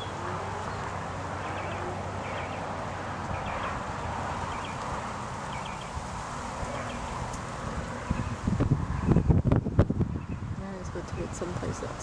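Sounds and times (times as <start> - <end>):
distant bird chirps: 0.0 - 3.8, 5.5 - 6.0
outdoor background hiss: 0.0 - 12.0.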